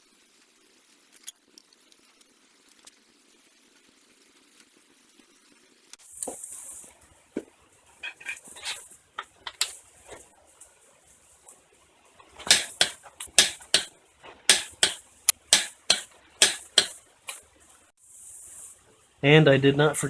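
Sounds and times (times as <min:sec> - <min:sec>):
sharp clacks: 0:12.2 - 0:13.9, 0:14.5 - 0:17.4.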